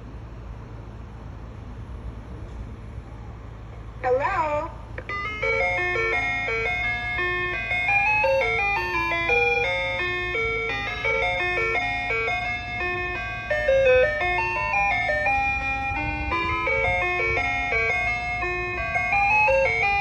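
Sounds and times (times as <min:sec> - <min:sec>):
ice cream truck jingle: 0:04.0 - 0:20.0.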